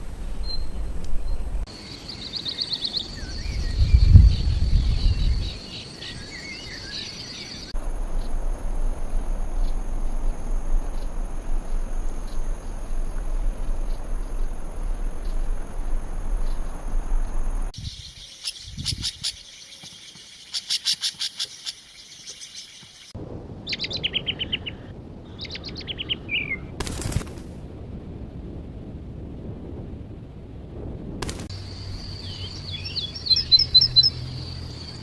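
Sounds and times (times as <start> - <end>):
birds singing: 0.4 - 7.8, 17.8 - 26.7, 31.5 - 35.0
steady rushing background: 7.7 - 18.0, 23.1 - 34.6
chattering bird trill: 31.7 - 35.0.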